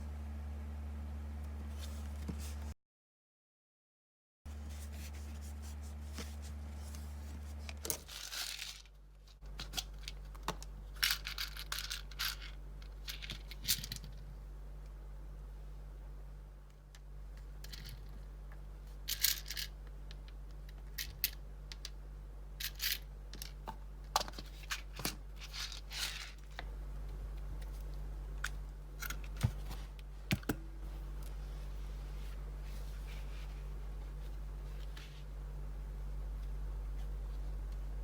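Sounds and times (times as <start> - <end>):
rustling of hands handling materials: 1.6 - 2.8, 4.5 - 14.3, 22.7 - 38.0
low hum: 24.7 - 38.0.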